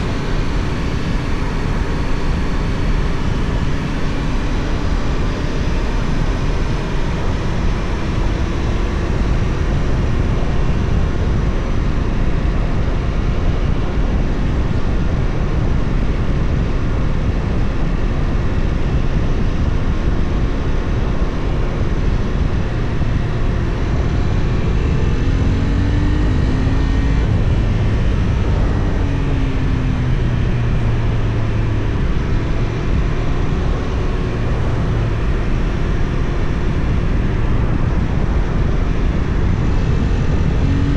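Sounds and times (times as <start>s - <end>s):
motorcycle engine running: 0.0s - 12.8s
wind rush on microphone: 0.0s - 40.9s.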